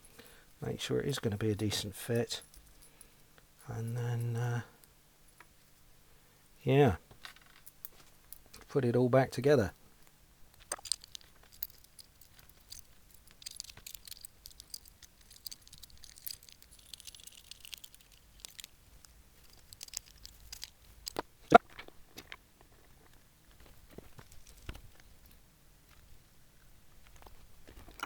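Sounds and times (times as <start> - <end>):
small clicks and rattles: 7.1 - 8.7, 10.0 - 26.1.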